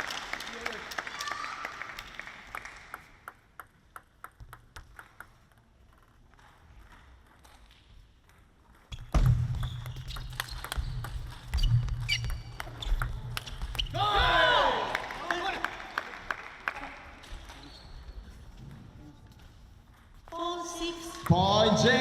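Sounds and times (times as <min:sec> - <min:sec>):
crowd noise and clapping: 0:00.0 - 0:04.3, 0:12.4 - 0:17.7
table tennis ball clicks: 0:03.2 - 0:06.0.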